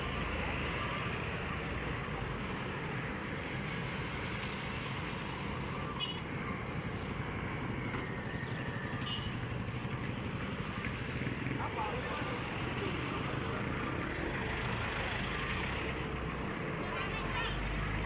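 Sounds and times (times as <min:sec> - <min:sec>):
large diesel engine running: 0:06.5 - 0:18.0.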